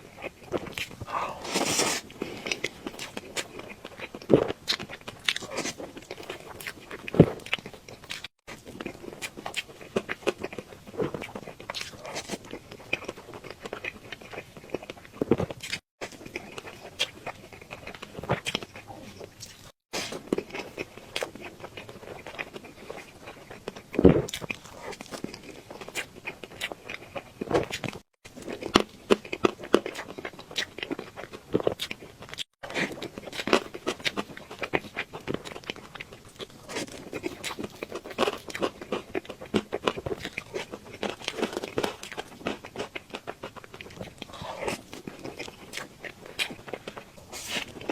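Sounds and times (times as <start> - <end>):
person chewing cake: 0.0 - 47.9.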